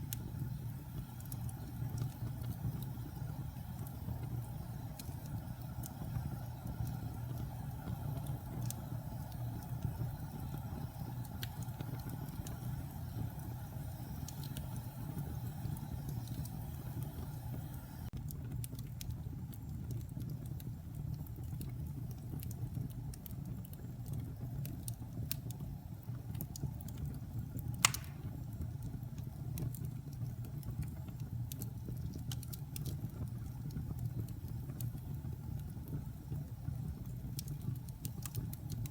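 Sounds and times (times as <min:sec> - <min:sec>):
burning wood crackling: 0:00.0 - 0:38.9
wood fire rumbling: 0:00.0 - 0:38.9
sharp loud pop: 0:27.8 - 0:28.2.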